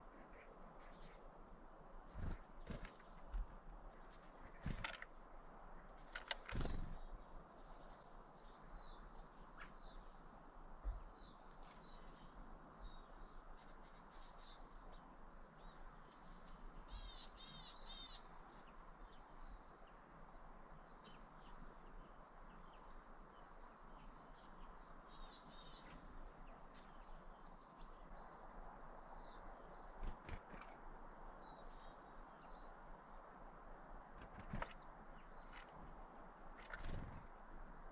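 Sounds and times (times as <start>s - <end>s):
small birds chirping: 0.0s - 37.9s.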